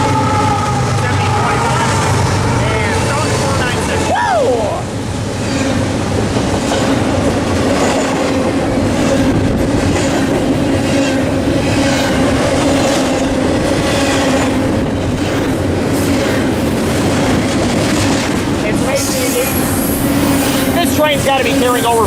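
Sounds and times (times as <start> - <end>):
train wheels clattering on rails: 5.1 - 22.0.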